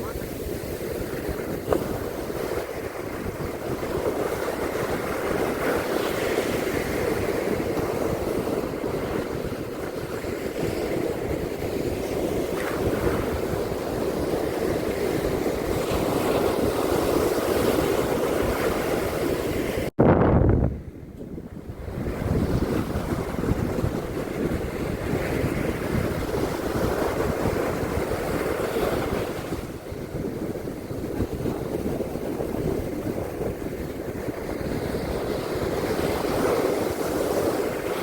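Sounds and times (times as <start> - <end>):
surf washing on beach: 0.0 - 19.9, 20.7 - 38.0
wind buffeting microphone: 0.0 - 38.0.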